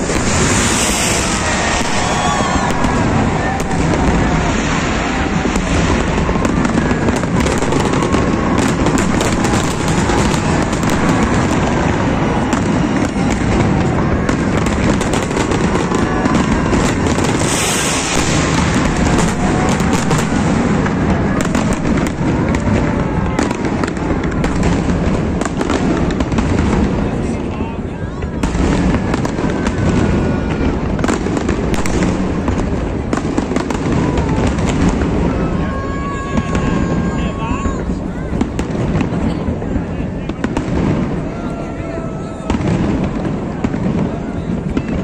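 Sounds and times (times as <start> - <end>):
fireworks hiss: 0.0 - 22.7
crowd voices: 0.0 - 45.0
fireworks booms: 0.0 - 45.0.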